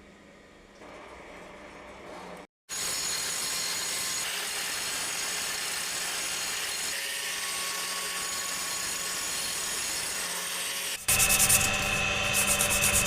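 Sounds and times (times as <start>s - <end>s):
power tool running under load: 2.7s - 13.0s.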